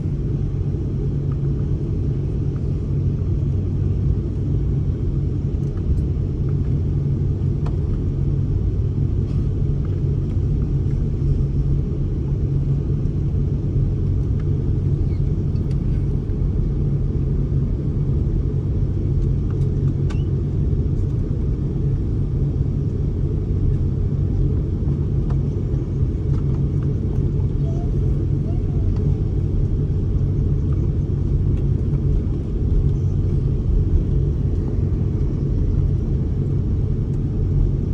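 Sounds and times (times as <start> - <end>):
jet cabin rumble and hum: 0.0 - 37.9.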